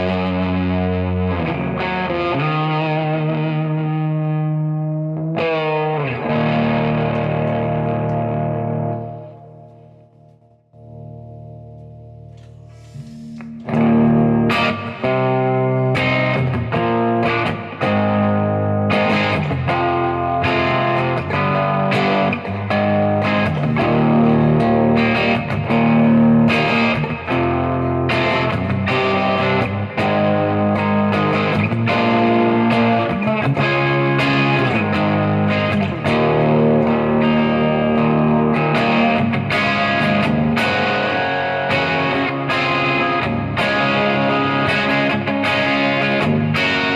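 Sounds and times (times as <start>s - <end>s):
distorted electric guitar: 0.0s - 46.9s.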